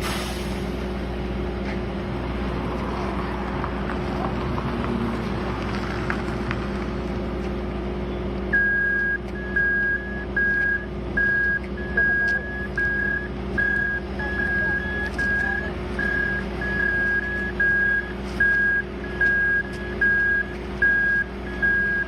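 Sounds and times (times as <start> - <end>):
construction machinery engines running: 0.0 - 22.0
reversing alarm beeping: 8.5 - 22.0.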